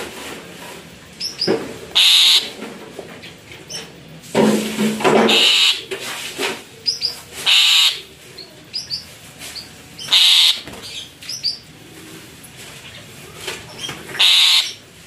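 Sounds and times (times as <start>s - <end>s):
harsh bird squawks: 1.2s - 2.6s, 5.3s - 5.9s, 6.9s - 8.1s, 10.0s - 11.6s, 13.7s - 14.8s
high rising bird chirps: 10.0s - 11.7s.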